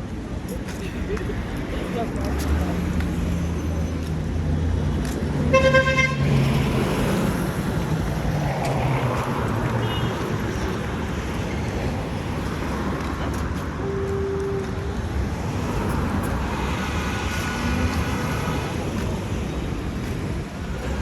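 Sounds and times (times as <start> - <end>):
street traffic: 0.0 - 21.0
car horn honking: 5.5 - 6.2, 9.8 - 10.2, 13.8 - 14.9.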